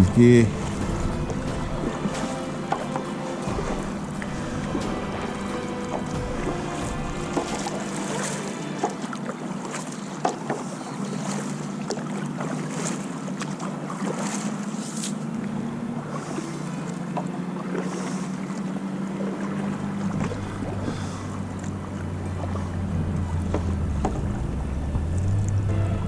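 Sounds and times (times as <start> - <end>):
deeper hum: 0.0 - 9.3
water splashing past boat hull: 0.0 - 25.6
boat motor hum: 0.0 - 26.0.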